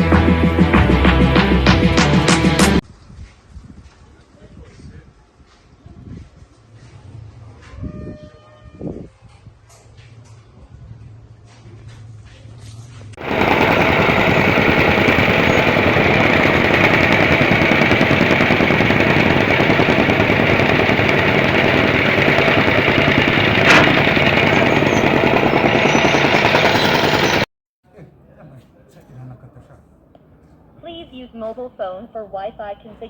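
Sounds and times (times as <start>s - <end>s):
pressure washer rattling: 13.2s - 27.5s.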